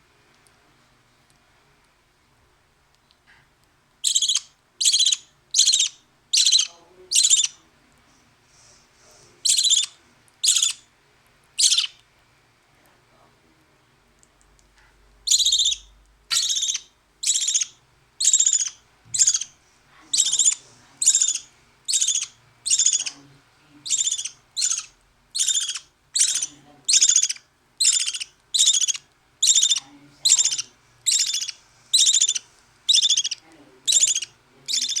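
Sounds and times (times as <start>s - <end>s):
baby bird raspy begging calls: 4.0s - 7.6s, 9.4s - 10.8s, 11.6s - 12.0s, 15.3s - 19.5s, 20.1s - 23.2s, 23.8s - 35.0s.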